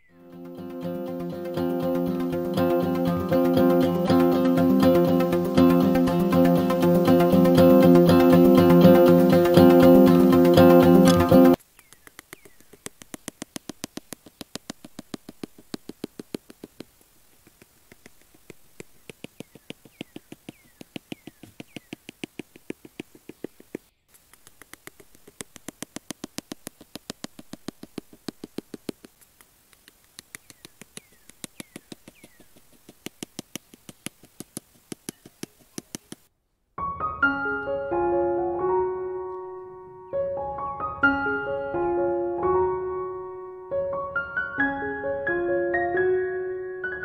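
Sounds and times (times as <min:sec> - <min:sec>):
rapid sharp clicks: 0:00.4 - 0:36.3.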